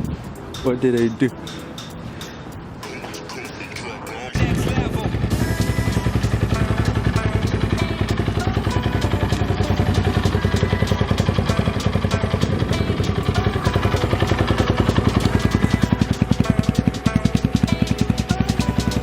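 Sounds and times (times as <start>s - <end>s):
dirt bike engine running: 4.4s - 19.0s.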